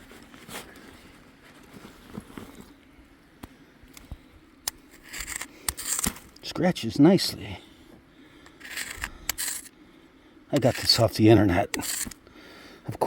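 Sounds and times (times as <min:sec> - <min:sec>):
faint scraping on stone: 0:08.5 - 0:09.7, 0:11.7 - 0:12.2.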